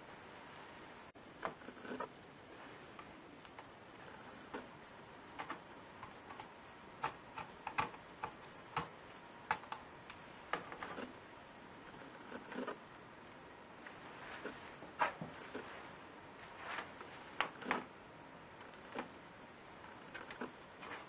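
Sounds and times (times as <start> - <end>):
clicks and taps on laptop parts: 5.4 - 9.9.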